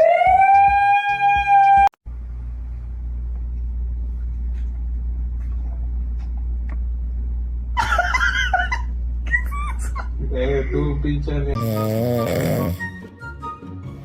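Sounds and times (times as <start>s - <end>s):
steady low rumble: 2.1s - 7.8s.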